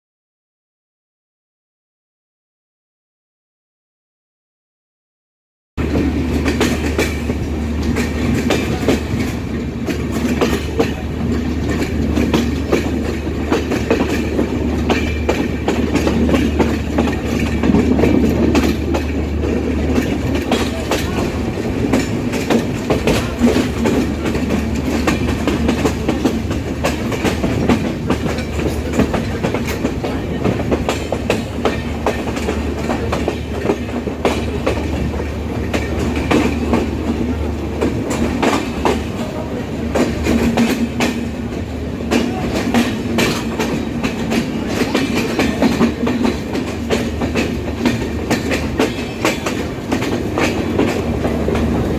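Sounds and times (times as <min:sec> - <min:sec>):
train rumbling on rails: 0:05.8 - 0:51.9.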